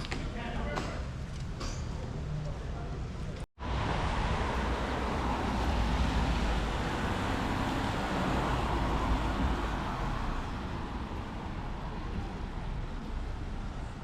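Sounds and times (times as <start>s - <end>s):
vehicle engine rumble: 1.1s - 14.0s
tyres hissing on wet road: 3.6s - 11.5s.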